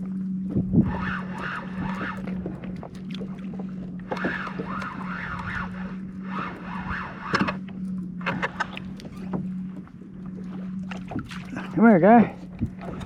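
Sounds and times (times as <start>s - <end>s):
low hum: 0.0s - 13.0s
fishing reel whirring: 0.1s - 9.7s.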